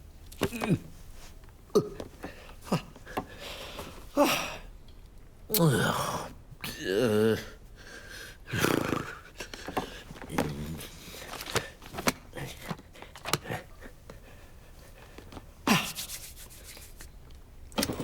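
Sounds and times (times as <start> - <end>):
voice-like grunt: 0.4 - 0.9, 1.8 - 3.0, 5.5 - 7.6, 8.5 - 9.5, 10.2 - 11.2, 15.7 - 16.0.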